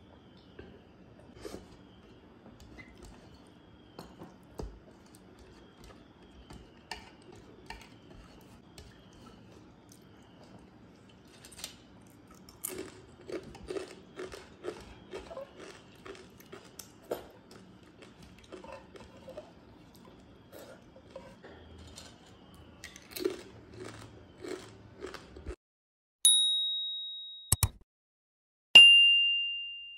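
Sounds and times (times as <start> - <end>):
electronic ding: 26.3 - 27.8, 28.8 - 29.9.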